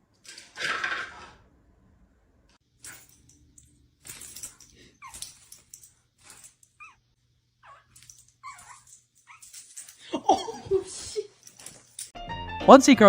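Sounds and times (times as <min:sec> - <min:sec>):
small scattered noises: 0:02.4 - 0:12.2
dog whimpering: 0:06.3 - 0:07.0, 0:07.6 - 0:11.4.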